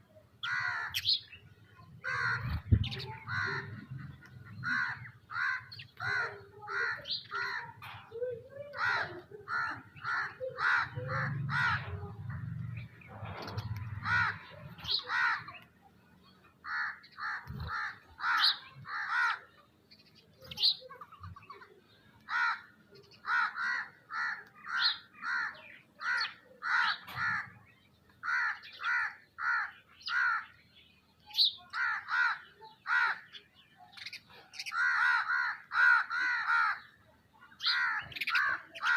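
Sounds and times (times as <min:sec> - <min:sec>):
crows cawing: 0:00.4 - 0:01.1, 0:02.0 - 0:07.9, 0:08.7 - 0:12.6, 0:13.6 - 0:15.7, 0:16.6 - 0:19.6, 0:22.2 - 0:30.6, 0:31.7 - 0:33.4, 0:34.5 - 0:37.0, 0:37.6 - 0:38.9.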